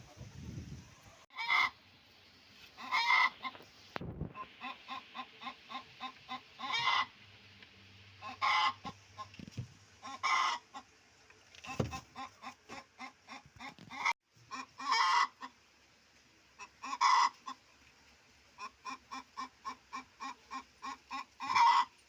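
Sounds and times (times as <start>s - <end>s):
chickens clucking: 0.0s - 1.8s, 2.6s - 22.0s
chickens squawking: 1.0s - 1.8s, 2.7s - 7.2s, 8.2s - 9.3s, 10.0s - 11.0s, 11.6s - 15.6s, 16.5s - 17.7s, 18.5s - 22.0s.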